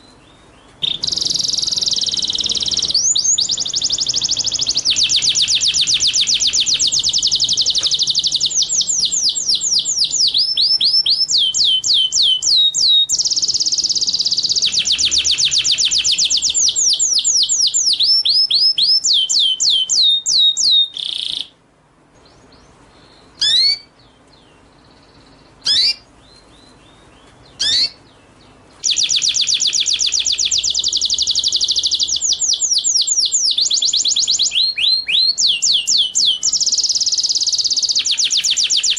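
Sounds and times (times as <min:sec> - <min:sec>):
sharp bird calls: 0:00.0 - 0:21.6, 0:22.2 - 0:38.9
songbird rapid chirping: 0:00.0 - 0:38.9.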